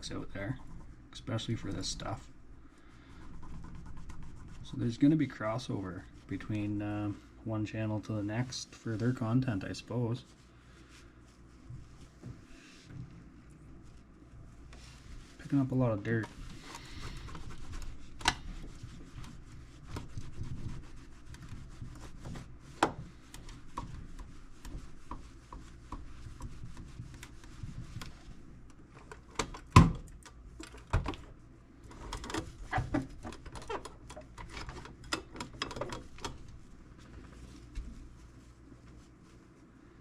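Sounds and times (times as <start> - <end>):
cloth rubbing a surface: 0.0 - 7.3, 8.2 - 28.7, 36.0 - 40.0.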